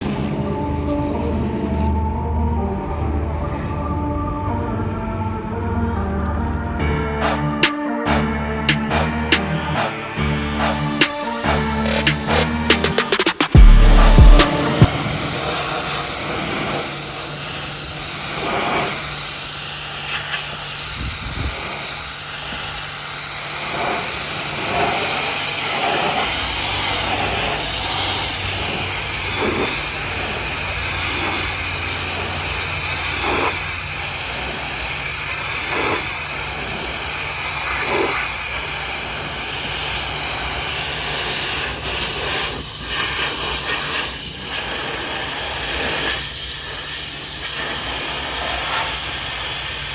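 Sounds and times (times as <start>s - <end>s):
pressure washer spraying: 6.4s - 49.9s.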